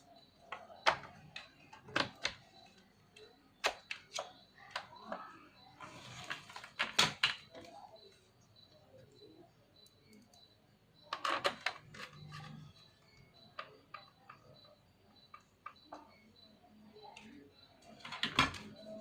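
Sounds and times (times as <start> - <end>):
plastic clicks and knocks: 0.4 - 5.4, 6.3 - 7.8, 11.1 - 16.2, 17.2 - 19.0.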